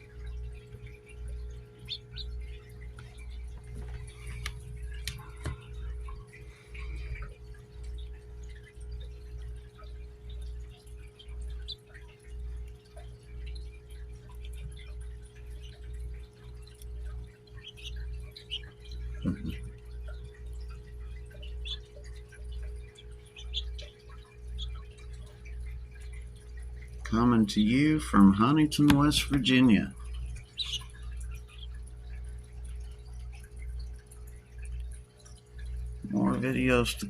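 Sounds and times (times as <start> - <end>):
steady low hum: 0.0 - 37.0
high bird chirps: 17.5 - 19.6, 23.2 - 25.0, 30.4 - 31.8.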